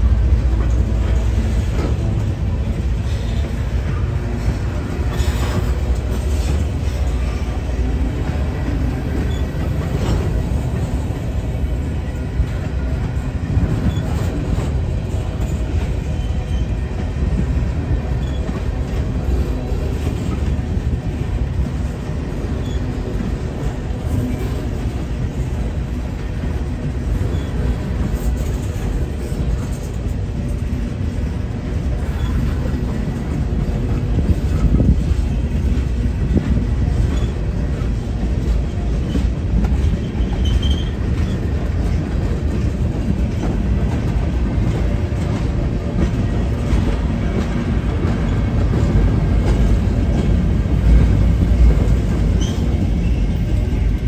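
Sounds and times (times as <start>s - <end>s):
train rumbling on track: 0.0s - 54.0s
high wheel squeals: 40.0s - 41.4s.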